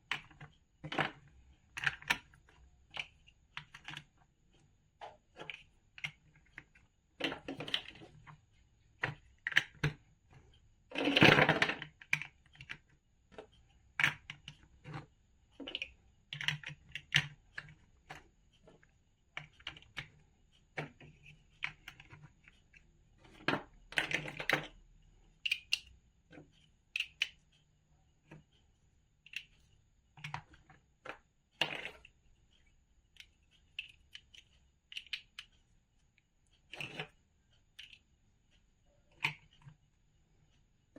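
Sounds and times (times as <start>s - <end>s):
toy bricks clicking: 25.4s - 25.9s, 27.0s - 27.4s, 33.2s - 35.5s.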